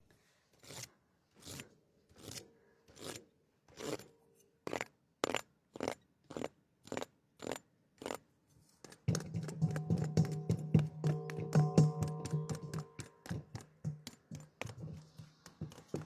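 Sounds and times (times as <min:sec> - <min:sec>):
short scraping strokes: 0:12.7 - 0:16.0.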